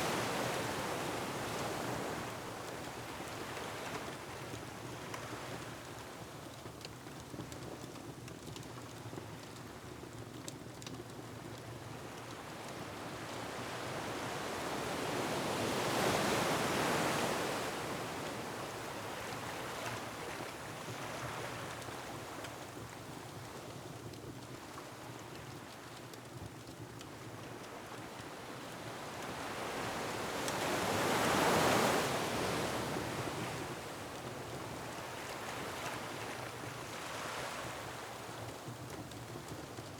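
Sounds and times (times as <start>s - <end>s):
wind: 0.0s - 39.9s
fireplace crackles: 2.6s - 13.1s, 19.0s - 28.8s, 33.5s - 39.9s.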